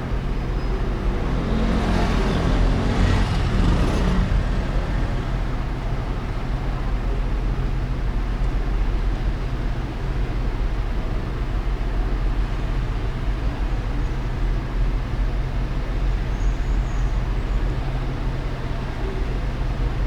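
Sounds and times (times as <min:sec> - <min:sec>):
vehicle passing close by: 0:00.0 - 0:06.6
traffic rumble: 0:00.0 - 0:20.0.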